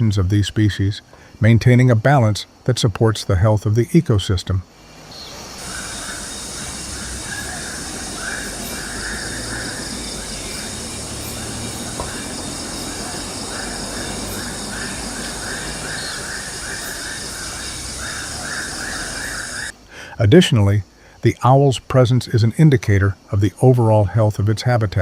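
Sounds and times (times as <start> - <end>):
forest background hiss: 0.0 - 25.0
bird calling: 5.1 - 19.7.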